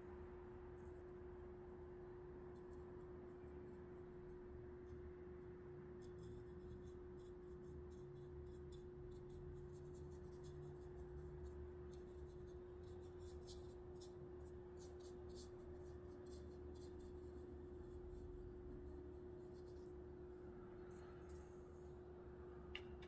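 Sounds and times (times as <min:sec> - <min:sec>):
steady hum: 0:00.0 - 0:23.0
paintbrush scratching on paper: 0:05.9 - 0:20.4.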